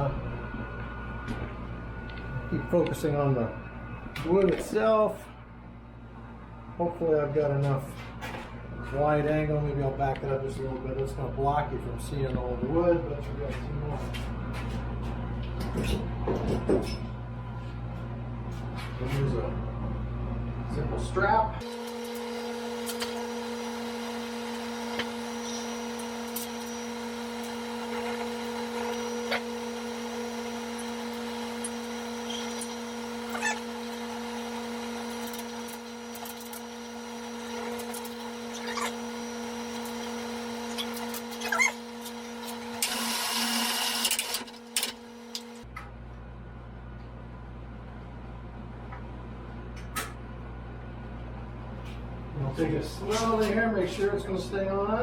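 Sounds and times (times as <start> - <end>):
electric lift motor humming: 0.0 - 12.6, 19.4 - 45.8.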